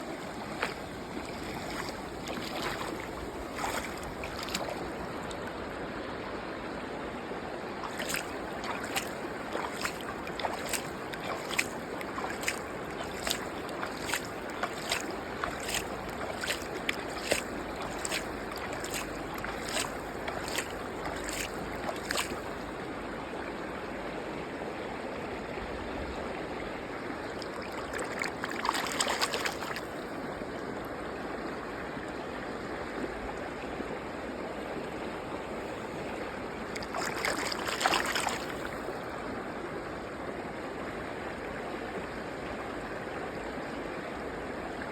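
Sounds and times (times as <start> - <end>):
running water rushing: 0.0 - 5.6, 7.8 - 22.9, 27.3 - 30.3, 35.6 - 39.2.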